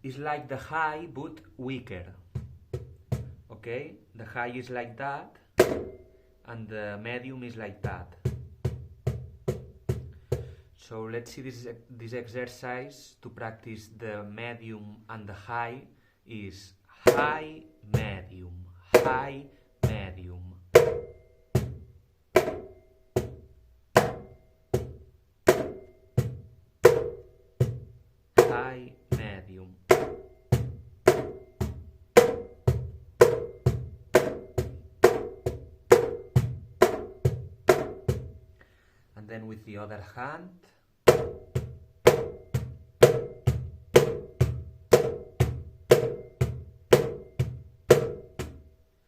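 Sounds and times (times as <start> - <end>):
cajon struck by hand: 5.6 - 6.0, 20.8 - 27.8, 29.9 - 38.4, 41.1 - 48.7.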